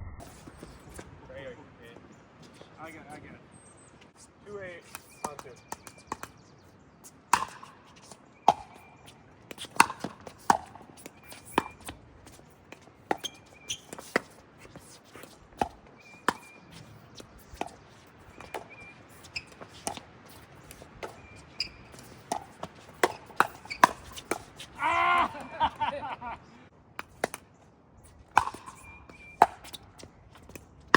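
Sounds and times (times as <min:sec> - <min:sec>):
ball bouncing on court: 0:04.9 - 0:06.4, 0:07.3 - 0:08.9, 0:09.5 - 0:14.4, 0:15.6 - 0:24.7, 0:28.3 - 0:30.9
paddles hitting plastic ball: 0:07.3 - 0:25.5, 0:28.2 - 0:30.9
faint high squeaks: 0:13.2 - 0:15.4, 0:16.0 - 0:24.7.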